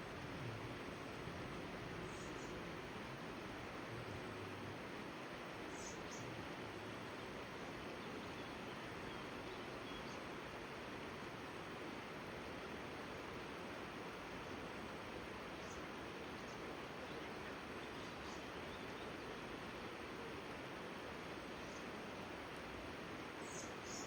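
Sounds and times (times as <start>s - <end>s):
river water rushing: 9.2s - 24.0s.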